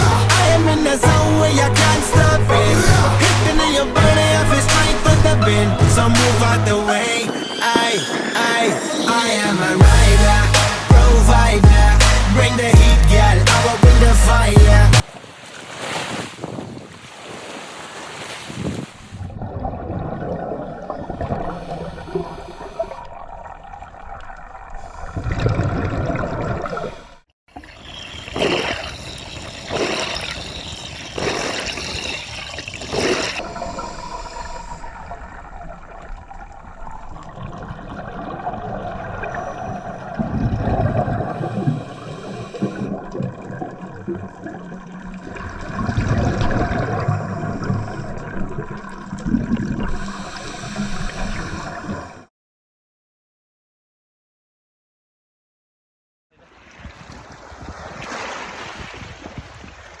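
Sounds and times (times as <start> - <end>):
underwater regulator bubbles: 11.3 - 15.0, 19.2 - 52.2
underwater gurgling wash: 19.1 - 52.3.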